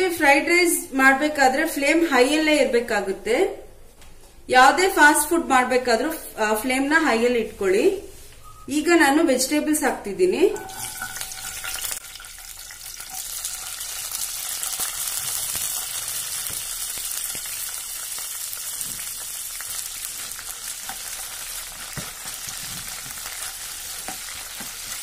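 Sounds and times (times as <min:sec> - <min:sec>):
vegetables sizzling in hot oil: 0:10.6 - 0:25.0.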